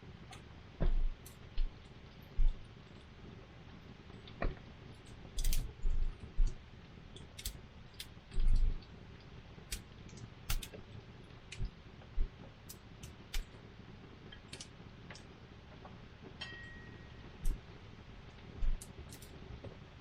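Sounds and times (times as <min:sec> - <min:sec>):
faint steady hiss: 0:00.0 - 0:20.0
campfire crackling and popping: 0:00.1 - 0:19.8
low dull thumps: 0:00.8 - 0:01.8, 0:02.4 - 0:02.7.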